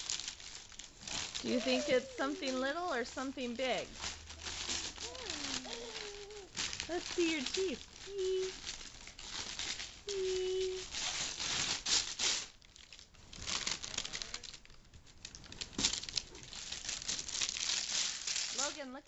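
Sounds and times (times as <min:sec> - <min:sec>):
wrapping paper crumpling and tearing: 0:00.0 - 0:19.0.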